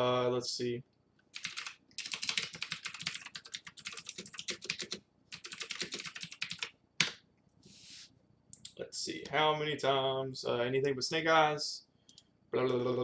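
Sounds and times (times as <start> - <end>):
fast keyboard typing: 1.4 - 7.2.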